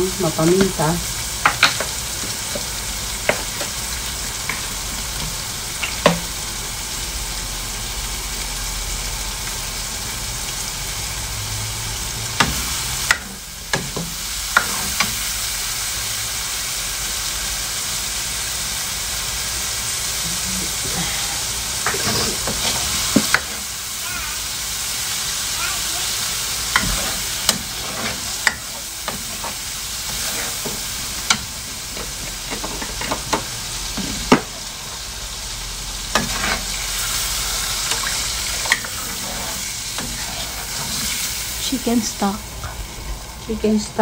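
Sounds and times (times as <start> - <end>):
meat sizzling in a wok: 0.0 - 44.0
metal ladle scraping a pan: 14.6 - 15.2, 21.8 - 23.7, 26.6 - 33.4, 36.1 - 41.4.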